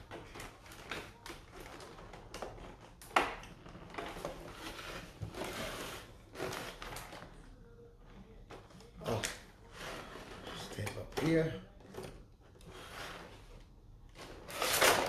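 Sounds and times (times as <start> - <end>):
plastic packaging crinkling: 14.0 - 15.0.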